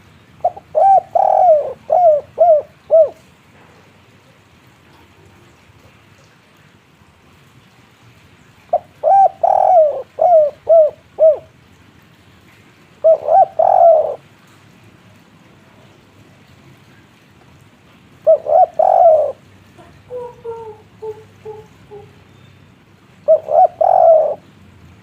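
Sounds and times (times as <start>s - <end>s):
dove cooing: 0.4s - 3.3s, 8.7s - 11.5s, 13.0s - 14.2s, 18.2s - 22.3s, 23.2s - 24.5s.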